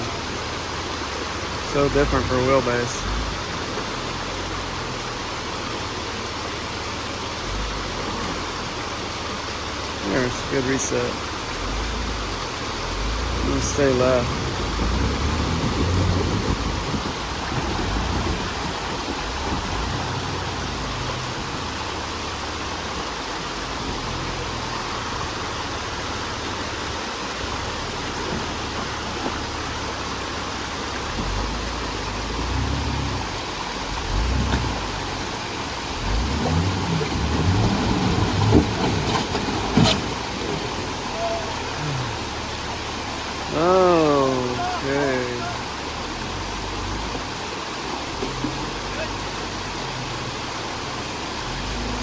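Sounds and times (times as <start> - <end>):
engine revving in surges: 10.2 - 22.0, 31.0 - 43.0.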